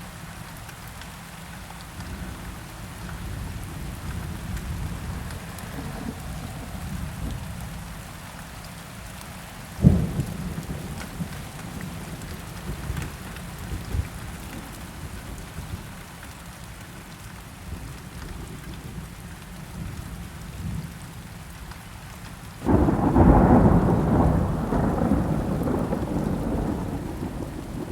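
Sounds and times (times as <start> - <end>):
steady rain: 0.0 - 27.9
thunder crack: 22.6 - 27.9
thunder rolling: 22.6 - 27.9.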